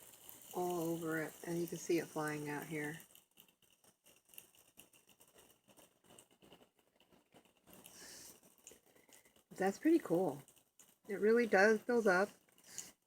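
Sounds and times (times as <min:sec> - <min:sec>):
water droplets pattering: 0:00.0 - 0:03.5
soft hiss: 0:00.0 - 0:06.6, 0:07.7 - 0:13.0.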